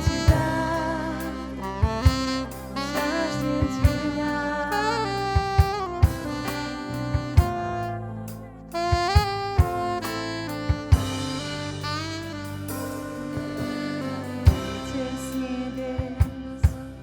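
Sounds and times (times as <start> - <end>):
band playing instrumental: 0.0 - 17.0
drum hits: 9.0 - 13.9.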